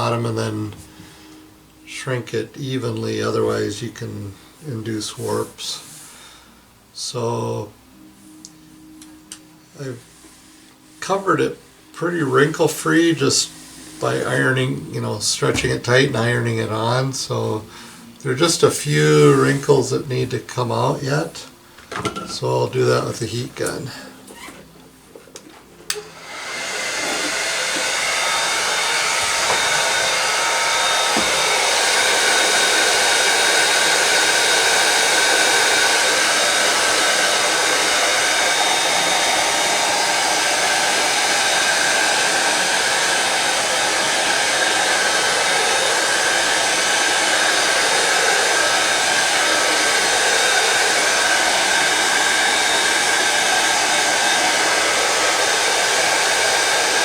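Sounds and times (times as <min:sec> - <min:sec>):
heat gun blowing hiss: 0:00.8 - 0:01.9, 0:13.0 - 0:24.6, 0:25.9 - 0:57.0
heat gun switch: 0:25.9 - 0:57.0.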